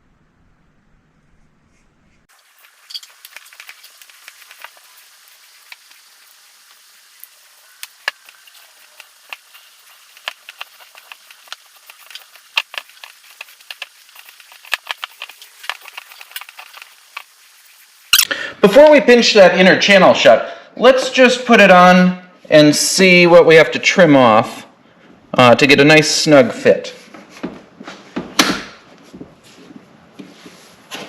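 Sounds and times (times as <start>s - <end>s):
faint hiss: 1.7s - 19.4s.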